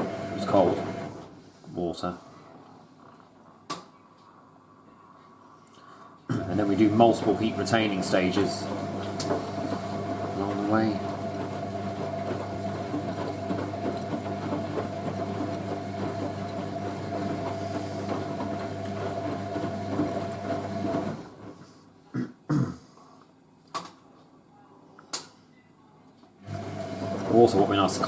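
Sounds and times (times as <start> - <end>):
washing machine motor hum: 0.0 - 1.4, 6.3 - 21.6, 26.4 - 28.0
water and laundry sloshing: 6.4 - 21.6, 26.5 - 28.0.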